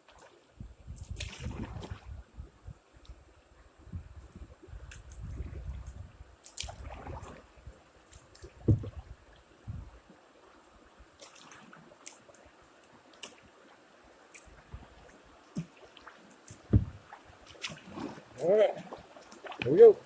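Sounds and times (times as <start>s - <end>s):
small water splashes: 0.0s - 2.2s, 4.6s - 20.0s
low thumps: 8.6s - 9.0s, 16.6s - 17.0s.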